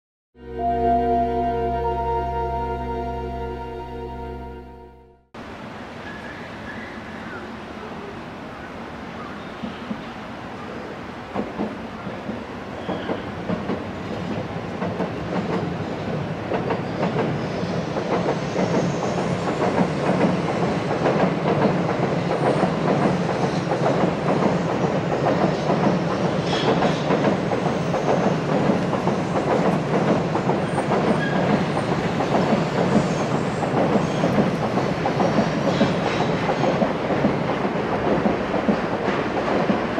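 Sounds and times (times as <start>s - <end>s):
train wheels rumbling: 11.3s - 39.9s.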